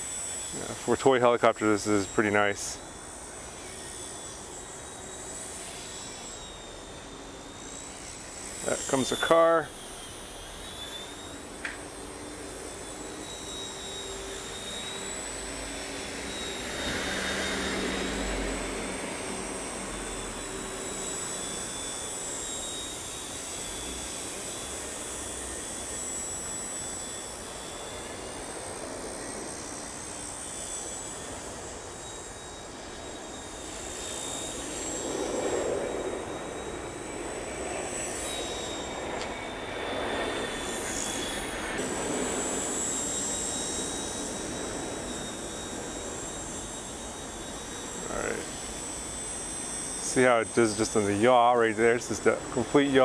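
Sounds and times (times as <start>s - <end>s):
toy helicopter motor whine: 0.0s - 53.0s.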